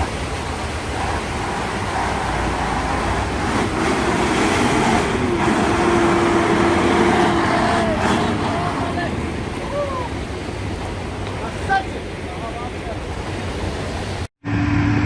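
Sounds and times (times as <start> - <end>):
truck engine under load: 0.0 - 9.6
steady rushing noise: 0.0 - 15.0.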